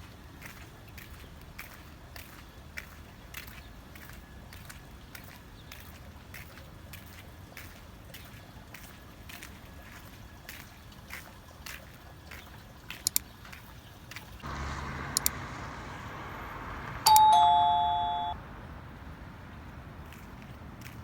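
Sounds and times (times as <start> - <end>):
sharp clicks: 15.1 - 15.4
electronic doorbell chime: 17.1 - 18.4.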